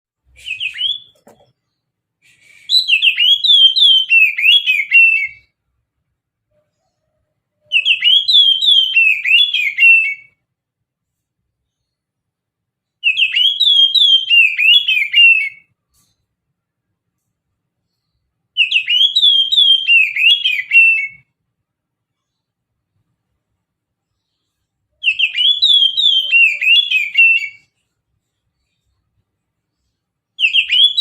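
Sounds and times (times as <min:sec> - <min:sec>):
bird singing sliding notes: 0:24.1 - 0:29.0.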